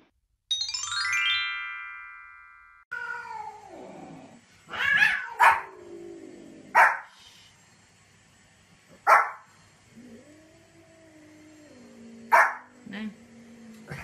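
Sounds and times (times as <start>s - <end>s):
falling ringing chime jingle: 0.5s - 2.9s
cat yowling: 4.7s - 5.8s
small dog barking: 4.9s - 5.7s, 6.7s - 7.1s, 9.0s - 9.4s, 12.3s - 12.7s.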